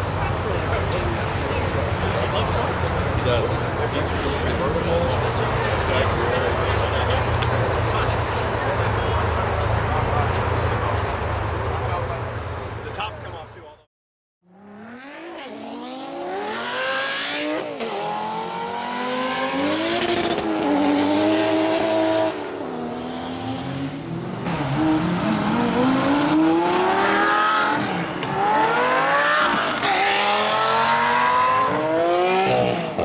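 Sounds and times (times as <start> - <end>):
car engine accelerating through gears: 14.6 - 33.0.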